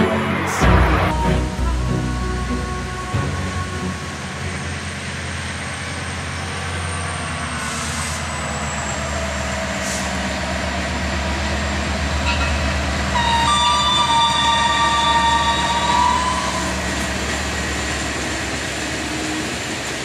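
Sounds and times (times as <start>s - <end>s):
train horn chord: 0.0s - 5.1s, 12.2s - 17.2s
diesel train engine rumbling: 0.0s - 20.0s.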